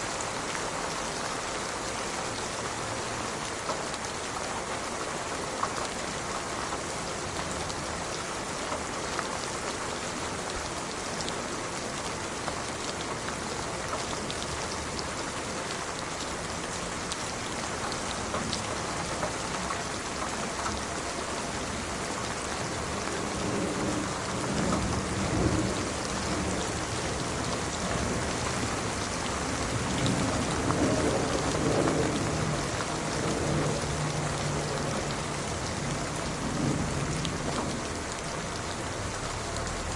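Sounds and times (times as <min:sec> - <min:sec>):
rain falling on a surface: 0:00.0 - 0:39.9
low rolling thunder: 0:23.0 - 0:38.3.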